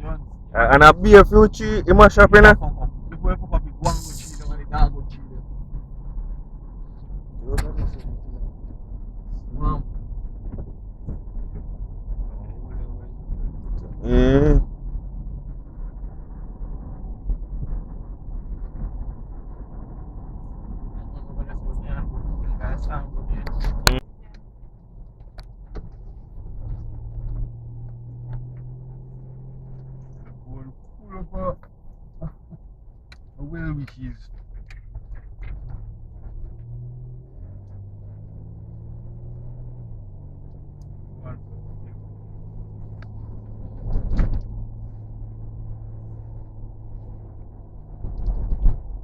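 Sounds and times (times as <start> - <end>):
steady low hum: 0.0 - 49.0
thumps and rattles: 34.3 - 38.3, 42.8 - 44.9, 47.2 - 49.0.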